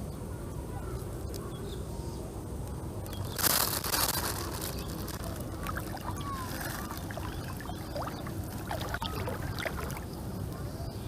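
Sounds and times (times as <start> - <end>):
water sloshing and trickling: 3.5 - 10.5.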